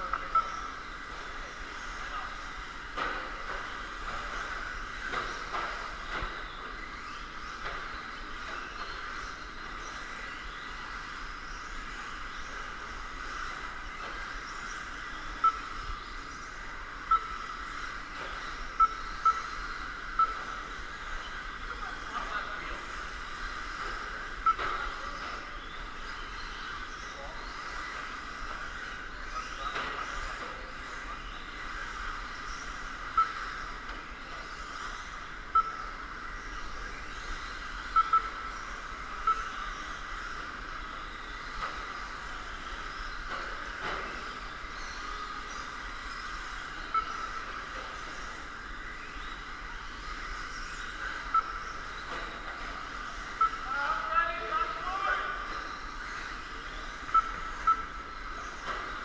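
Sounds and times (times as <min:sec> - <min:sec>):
short electronic beeps: 0:00.0 - 0:00.8, 0:15.4 - 0:15.8, 0:17.1 - 0:17.5, 0:18.8 - 0:19.6, 0:20.2 - 0:20.6, 0:24.4 - 0:25.0, 0:33.1 - 0:33.4, 0:35.5 - 0:35.9, 0:37.9 - 0:38.5, 0:39.2 - 0:39.6, 0:46.9 - 0:47.5, 0:51.3 - 0:51.6, 0:53.3 - 0:53.7, 0:57.1 - 0:58.0.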